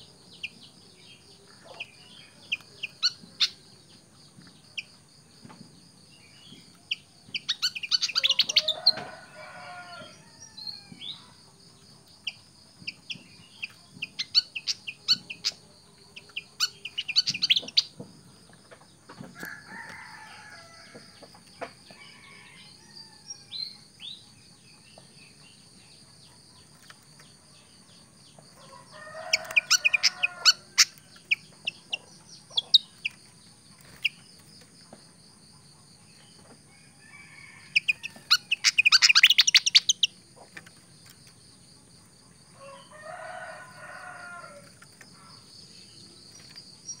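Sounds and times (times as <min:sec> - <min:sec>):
songbird chirping: 0:00.0 - 0:47.0
clucking fowl-like calls: 0:06.8 - 0:10.2, 0:12.2 - 0:22.6, 0:28.6 - 0:34.2, 0:35.9 - 0:41.1.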